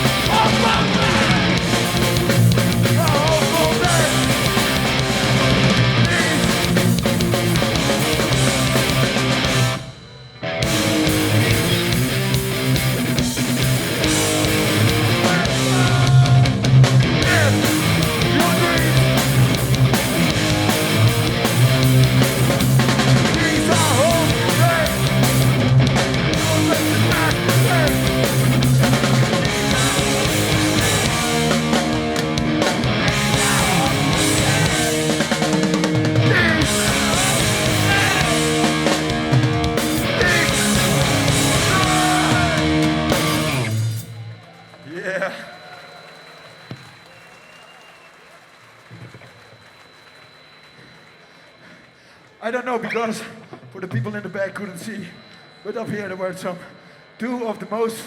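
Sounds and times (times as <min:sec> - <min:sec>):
electric guitars: 0:00.0 - 0:44.3
live punk band playing: 0:00.0 - 0:44.3.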